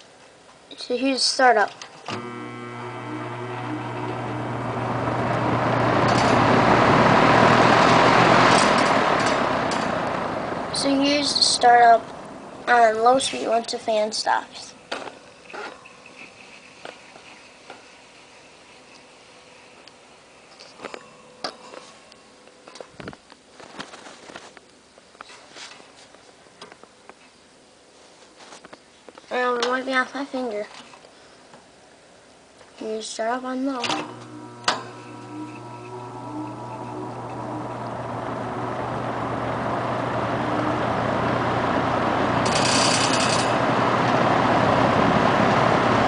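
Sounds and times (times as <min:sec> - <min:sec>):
fan motor humming: 0:02.1 - 0:14.2, 0:33.7 - 0:46.0.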